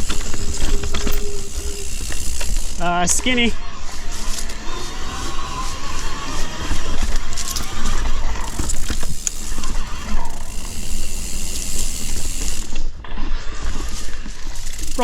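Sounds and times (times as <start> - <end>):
bike hub ratchet clicking: 0.0 - 13.0, 14.6 - 15.0
bike tyres on dirt: 0.0 - 15.0.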